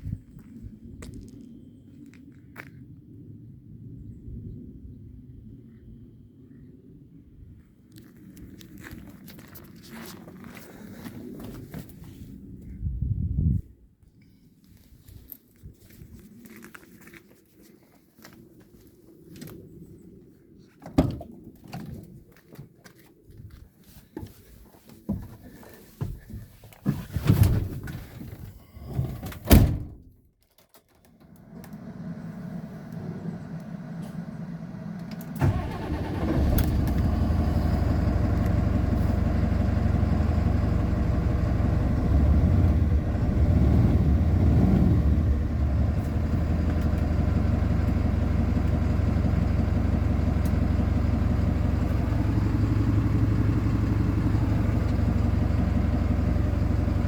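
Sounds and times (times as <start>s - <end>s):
truck diesel engine starting and idling: 31.3s - 57.0s.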